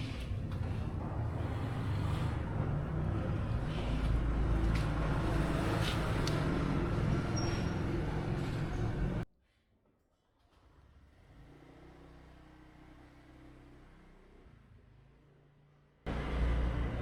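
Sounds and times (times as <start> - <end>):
engine rumbling: 0.0 - 9.2, 16.1 - 17.0.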